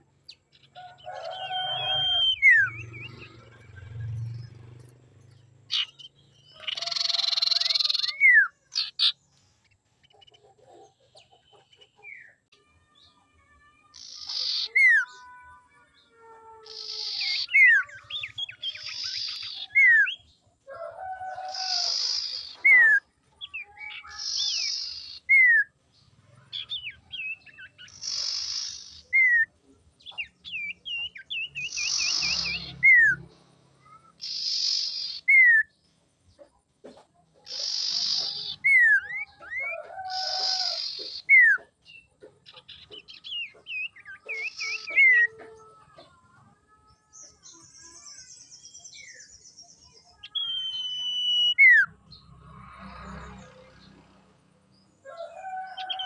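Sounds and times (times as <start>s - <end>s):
bird wavering trill: 0.8s - 4.3s.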